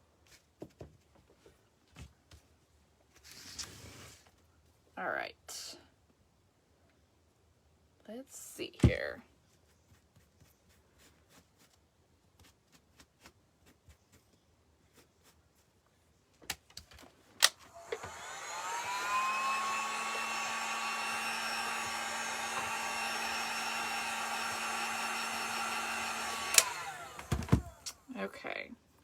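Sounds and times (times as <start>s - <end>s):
hot-air blower running: 17.7s - 28.1s.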